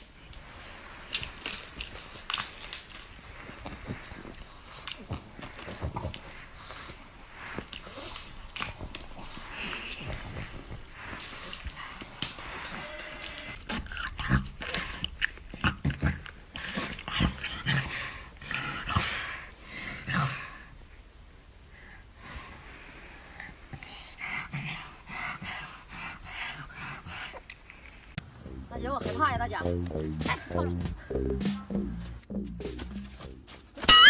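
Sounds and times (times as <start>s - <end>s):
dog breathing and growling: 0.4s - 12.8s, 13.4s - 20.7s.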